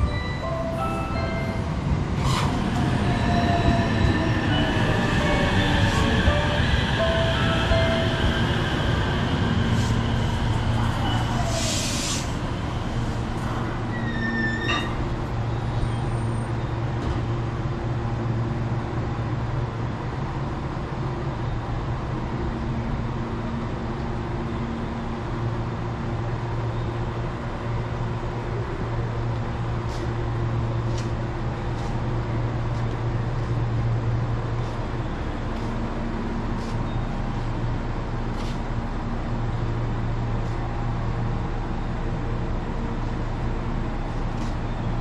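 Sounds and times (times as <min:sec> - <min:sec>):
high squeal: 0:07.5 - 0:12.3, 0:13.9 - 0:16.7
air hiss: 0:11.4 - 0:12.4.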